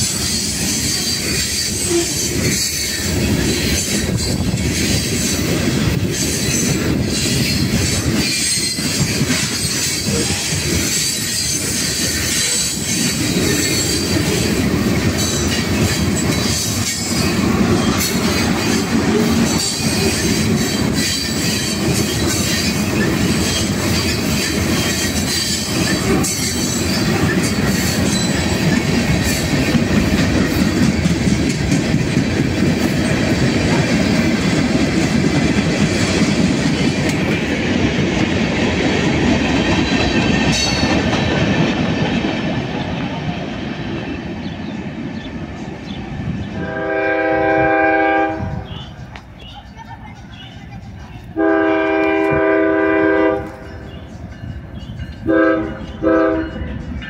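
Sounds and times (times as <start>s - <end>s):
high wheel squeal: 0.0s - 5.3s, 6.2s - 14.2s
train cars knocking and clattering: 0.0s - 57.0s
train wheels rumbling on rails: 0.0s - 57.0s.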